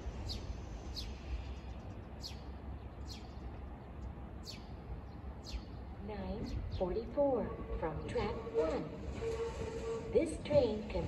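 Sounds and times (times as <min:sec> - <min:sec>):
steady low rumble: 0:00.0 - 0:11.0
bird chirping: 0:00.2 - 0:05.9.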